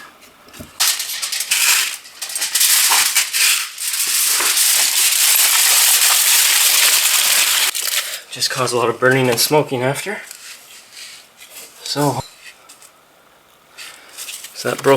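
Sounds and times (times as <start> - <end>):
aluminium foil crinkling: 0.8 - 8.3.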